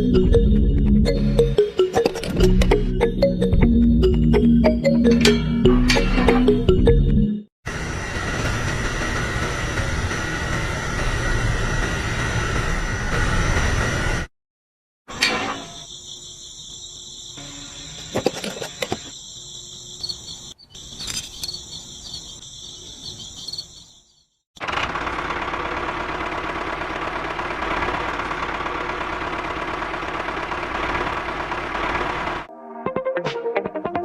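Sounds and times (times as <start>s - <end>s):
insects trilling: 15.6s - 24.3s
small motor running: 24.6s - 32.5s.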